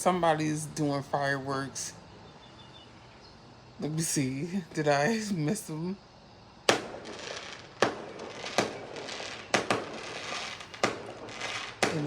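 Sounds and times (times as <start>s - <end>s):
fireworks bangs: 6.7s - 12.0s.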